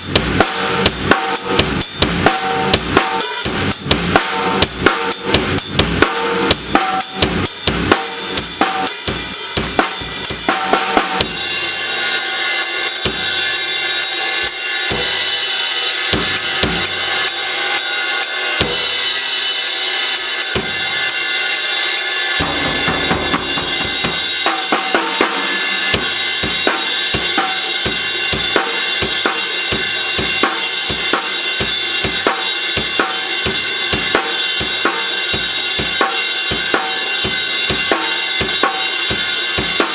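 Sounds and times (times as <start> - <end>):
drum kit beat: 0.0 - 13.7, 22.4 - 39.9
kick drum hits: 22.4 - 24.6
cymbals ringing: 22.4 - 26.4.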